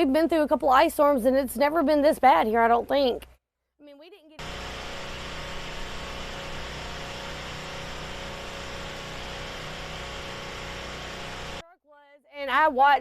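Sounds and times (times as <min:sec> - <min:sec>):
engine idling with hum and hiss: 0:04.4 - 0:11.6.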